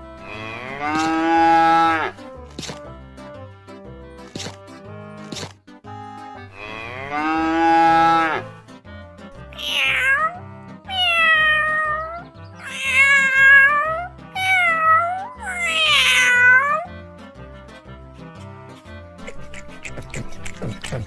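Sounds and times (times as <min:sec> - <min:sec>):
cat meowing: 0:09.5 - 0:16.9
background music with steady beat: 0:16.9 - 0:21.0.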